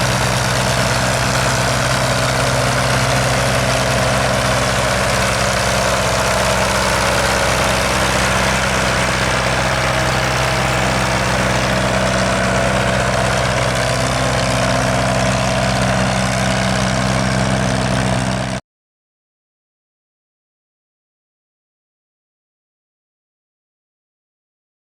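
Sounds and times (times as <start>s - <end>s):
tractor diesel engine idling: 0.0s - 18.6s.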